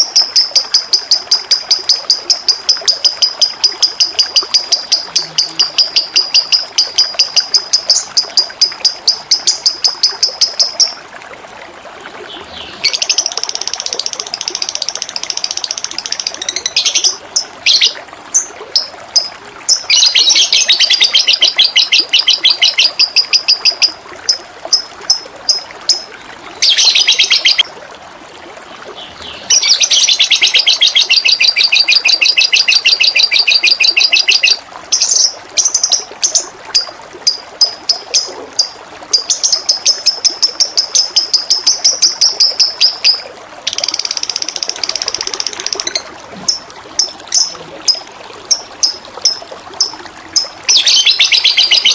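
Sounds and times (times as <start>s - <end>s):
flowing water: 0.0s - 51.9s
songbird trilling and chipping: 24.8s - 27.6s, 29.5s - 36.0s, 47.0s - 51.9s.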